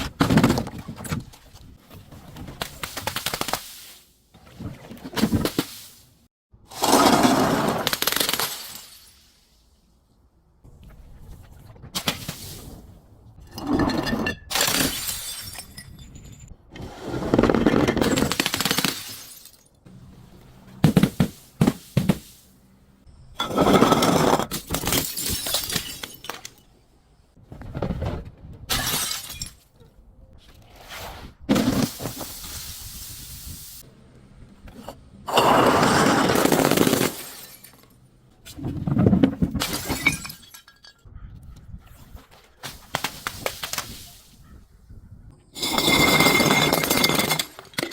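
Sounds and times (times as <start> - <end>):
glass bottles crushing and shattering: 6.8 - 9.3, 13.5 - 16.6, 17.5 - 19.8, 23.4 - 26.7, 28.7 - 29.7, 35.3 - 38.0, 38.9 - 41.1, 45.6 - 47.9.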